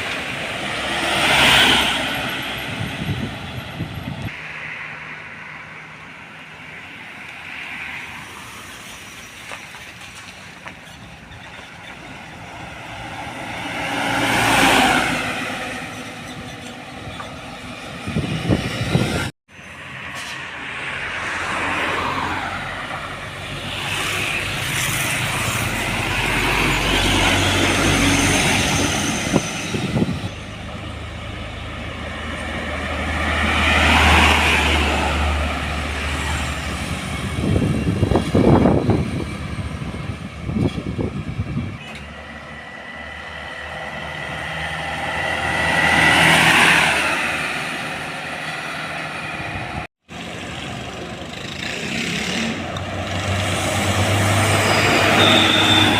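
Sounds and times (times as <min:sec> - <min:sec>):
trucks passing on road: 0:00.0 - 0:55.9.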